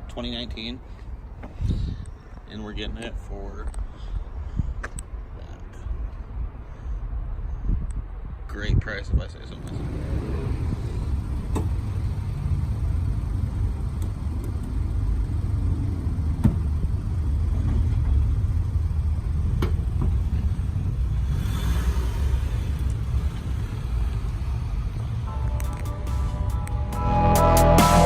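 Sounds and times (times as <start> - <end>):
car rumble: 9.2 - 28.0.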